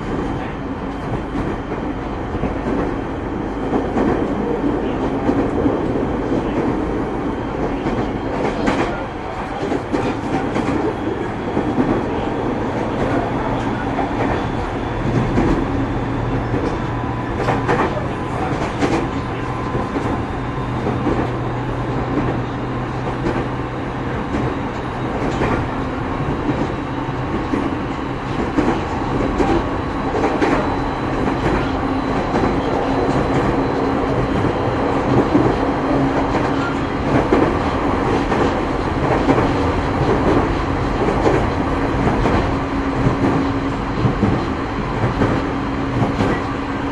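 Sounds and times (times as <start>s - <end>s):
electric train running noise: 0.0s - 46.9s.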